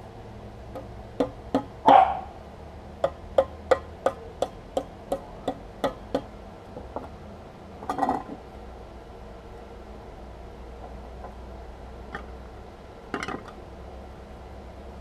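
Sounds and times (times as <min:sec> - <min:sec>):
dog bark: 0:01.8 - 0:02.4.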